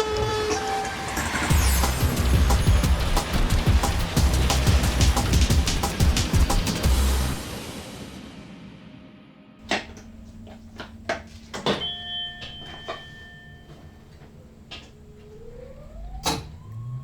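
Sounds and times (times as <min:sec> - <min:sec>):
steady low hum: 0:09.6 - 0:17.0
whine rising in pitch: 0:14.1 - 0:17.0.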